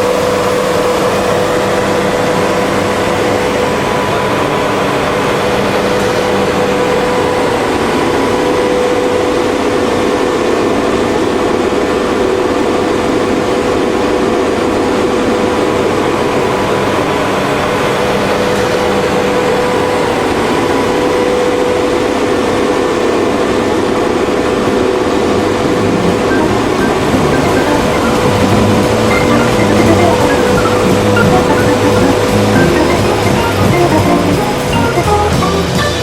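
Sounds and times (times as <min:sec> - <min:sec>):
steam boiler rushing and humming: 0:00.0 - 0:36.0.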